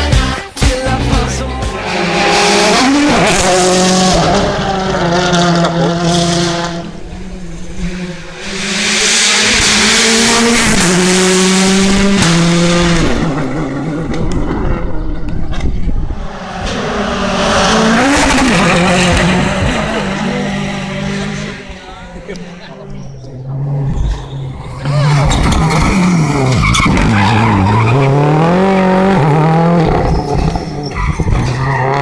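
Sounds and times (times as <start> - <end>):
rally car engines revving: 0.0 - 32.0
tyre noise: 9.6 - 32.0.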